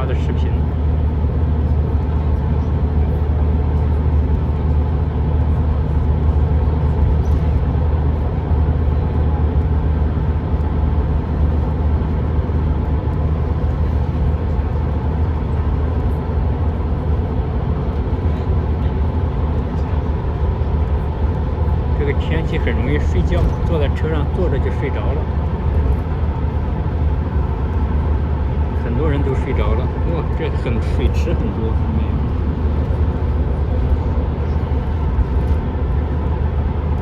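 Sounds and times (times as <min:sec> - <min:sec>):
coach engine and road rumble: 0:00.0 - 0:37.0.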